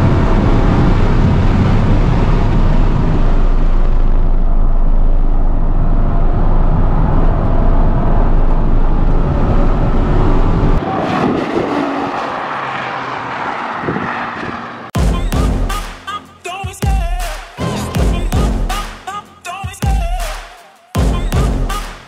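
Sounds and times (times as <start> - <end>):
distant race car: 0.0 - 15.0
road noise: 0.0 - 16.4
car engine drone: 0.0 - 16.5.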